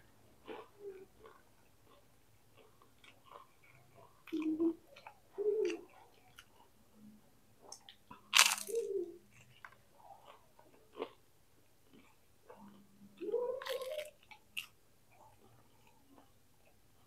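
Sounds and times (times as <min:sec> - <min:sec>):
wet chewing clicks: 0:00.4 - 0:06.8
crunchy bite into fried food: 0:07.8 - 0:08.9.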